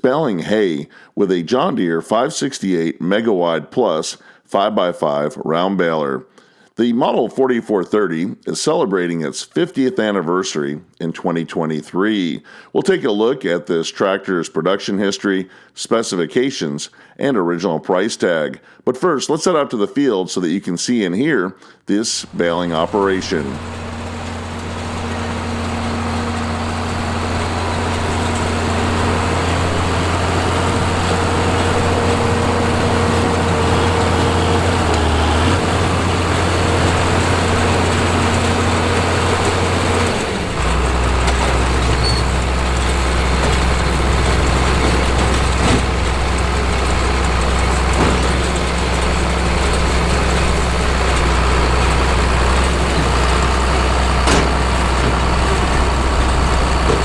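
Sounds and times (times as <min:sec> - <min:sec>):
tractor diesel engine running: 0:22.2 - 0:57.0.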